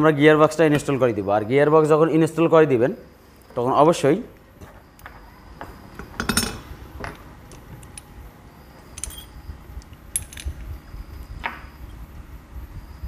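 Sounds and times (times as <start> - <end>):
metal engine parts clinking: 6.0 - 8.1, 8.8 - 9.4, 10.1 - 10.7.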